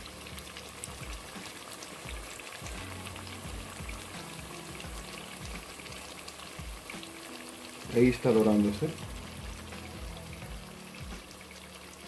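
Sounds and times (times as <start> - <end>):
churros sizzling in hot oil: 0.0 - 12.0
soft background music: 0.0 - 12.0.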